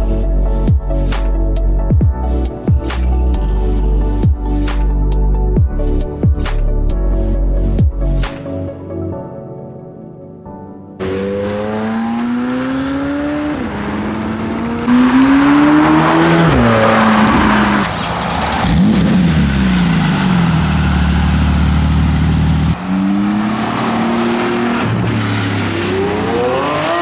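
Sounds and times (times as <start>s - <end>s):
car engines accelerating and upshifting: 11.0s - 27.0s.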